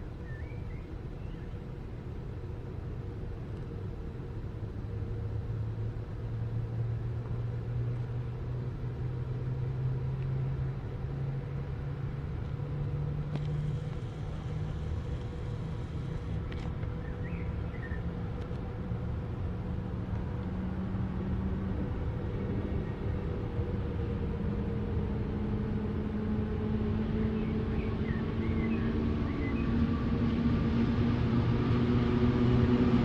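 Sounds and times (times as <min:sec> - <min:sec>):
distant vehicle rumble: 0:00.0 - 0:33.0
faint bird chirps: 0:00.2 - 0:01.6, 0:17.0 - 0:18.0.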